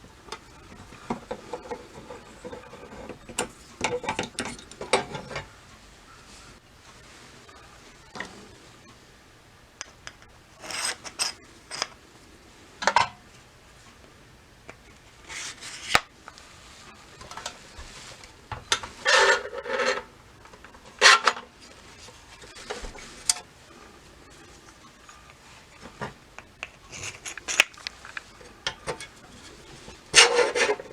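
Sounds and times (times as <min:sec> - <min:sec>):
scraping and rubbing metal parts: 0:09.8 - 0:12.0, 0:15.2 - 0:16.1, 0:18.8 - 0:20.2, 0:20.9 - 0:30.9.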